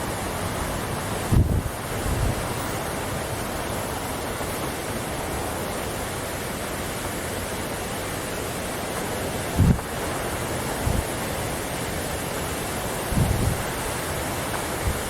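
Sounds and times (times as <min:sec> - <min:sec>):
waterfall rushing: 0:00.0 - 0:15.0
wind buffeting microphone: 0:01.2 - 0:02.6, 0:09.5 - 0:09.9, 0:10.8 - 0:11.2, 0:13.0 - 0:13.9.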